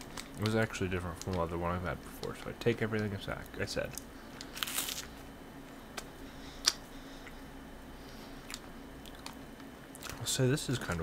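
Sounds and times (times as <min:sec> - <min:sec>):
faint steady hum: 0:00.0 - 0:11.0
crunchy snack chewing: 0:04.4 - 0:05.1, 0:08.4 - 0:10.2.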